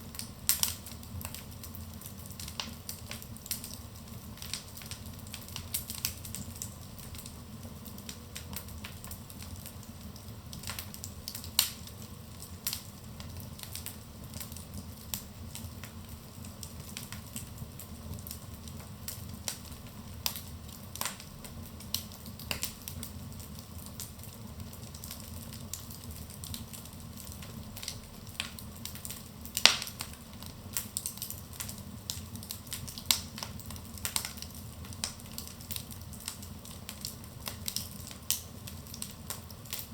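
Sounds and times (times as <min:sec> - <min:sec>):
low rumble of burning: 0:00.0 - 0:39.9
wood fire crackling: 0:00.0 - 0:39.9.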